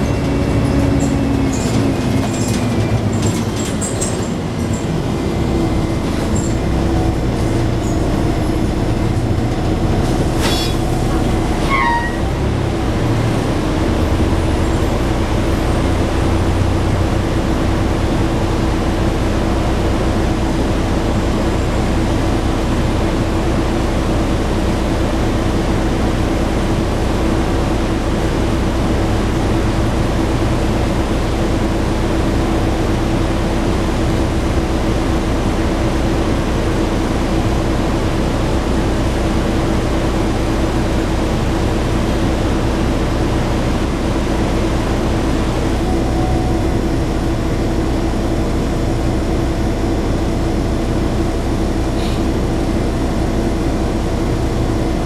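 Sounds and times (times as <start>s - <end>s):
bus engine and road noise: 0.0s - 55.0s
steady whine: 45.7s - 49.8s.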